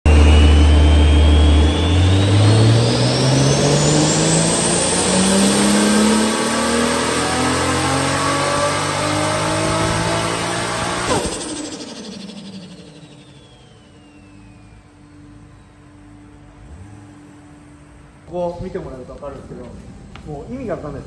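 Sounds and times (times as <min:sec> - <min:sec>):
turbocharged car engine revving: 0:00.0 - 0:15.6
thin high turbo whine: 0:00.1 - 0:21.0.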